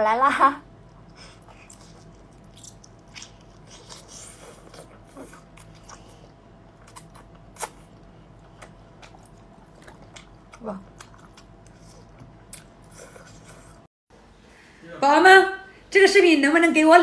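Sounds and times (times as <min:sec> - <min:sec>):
wet chewing and mouth smacks: 0:00.8 - 0:13.8.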